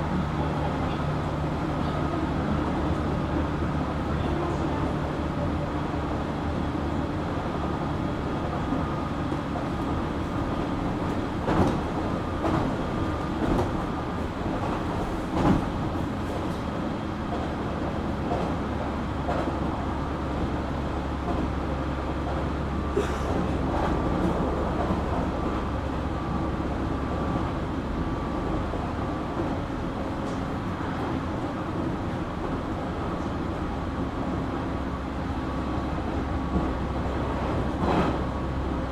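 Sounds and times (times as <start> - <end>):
electric train rumbling: 0.0 - 38.9.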